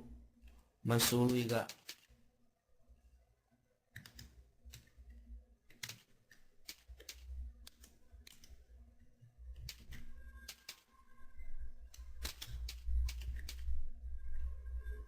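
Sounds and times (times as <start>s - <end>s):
typing on computer keyboard: 5.7s - 8.5s, 9.6s - 10.9s, 12.2s - 13.7s.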